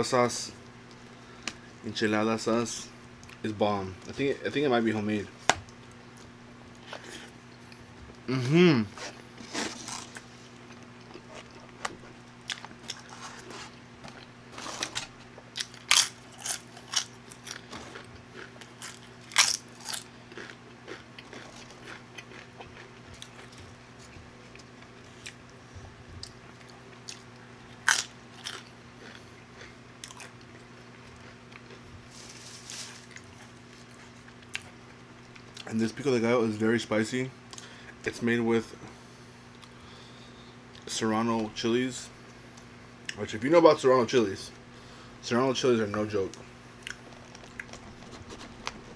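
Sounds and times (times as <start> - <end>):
tortilla chips crunching: 9.0 - 23.7, 26.6 - 35.7, 46.8 - 48.9
chewing and biting food: 15.5 - 25.5, 26.1 - 32.1.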